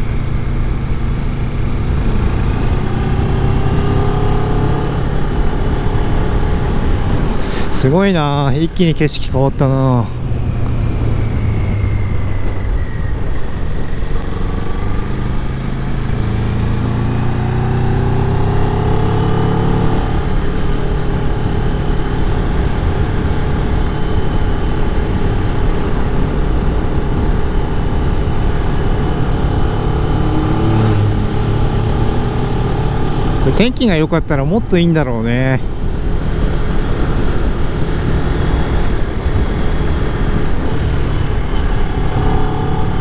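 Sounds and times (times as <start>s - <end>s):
motorcycle engine accelerating: 0.0s - 43.0s
wind rush on microphone: 0.0s - 43.0s.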